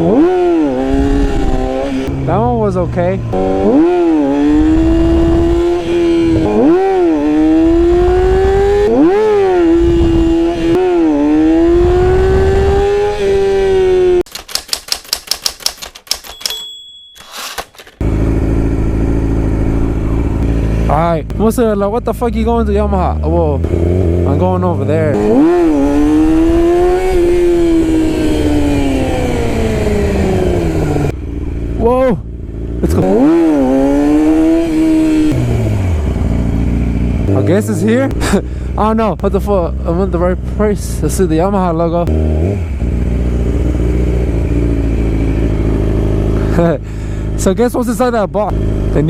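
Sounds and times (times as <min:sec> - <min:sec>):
motorcycle engine running: 0:00.0 - 0:14.2, 0:18.0 - 0:49.0
motorcycle engine pulling: 0:11.8 - 0:21.0.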